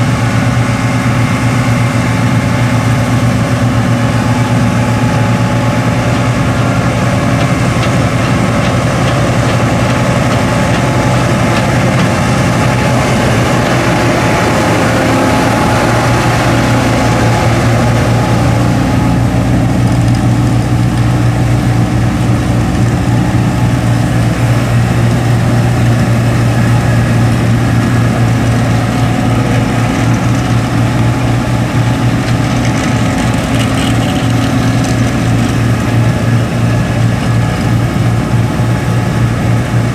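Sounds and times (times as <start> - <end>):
combine harvester diesel drone: 0.0 - 39.9.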